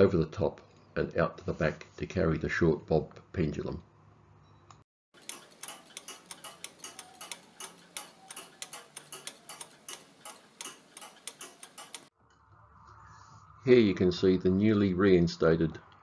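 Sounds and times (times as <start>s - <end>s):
clock ticking steadily: 5.2s - 12.1s.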